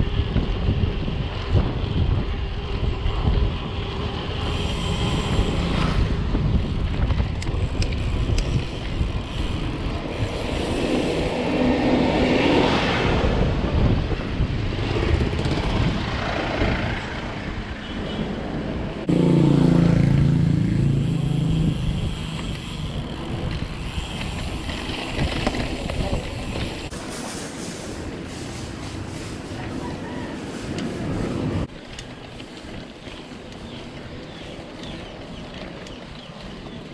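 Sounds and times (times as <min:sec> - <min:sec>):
bike tyres rolling: 0:00.0 - 0:12.0, 0:21.7 - 0:30.0, 0:30.7 - 0:36.9
wind rush: 0:00.0 - 0:31.8.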